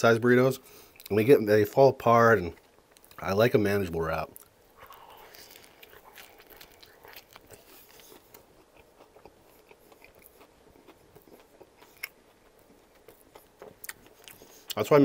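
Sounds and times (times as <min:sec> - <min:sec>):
person chewing crunchy food: 0:04.2 - 0:14.8
wet mouth sounds: 0:04.3 - 0:14.8.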